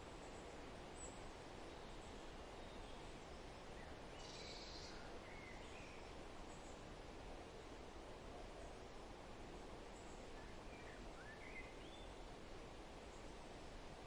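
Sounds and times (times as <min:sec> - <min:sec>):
steady background hiss: 0:00.0 - 0:14.0
faint bird calls: 0:03.8 - 0:06.8.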